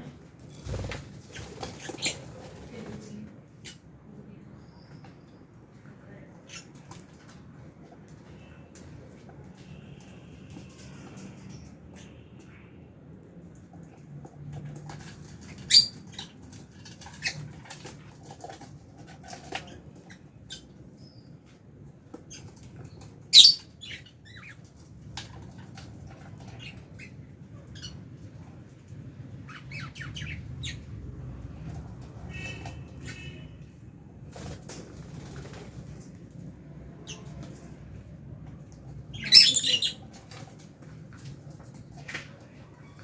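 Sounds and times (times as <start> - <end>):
lovebirds chirping: 15.4 - 16.4, 23.3 - 24.6, 29.5 - 30.9, 39.1 - 40.1.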